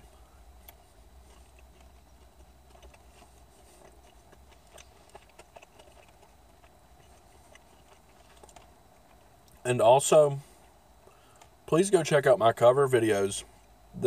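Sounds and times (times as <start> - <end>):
person chewing food: 0.0 - 9.6
low hum: 0.0 - 14.0.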